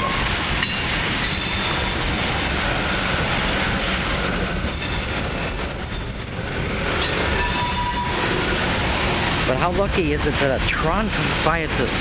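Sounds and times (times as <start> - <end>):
high wheel squeal: 0.0 - 8.5
freight train wheels rumbling on rail: 0.0 - 12.0.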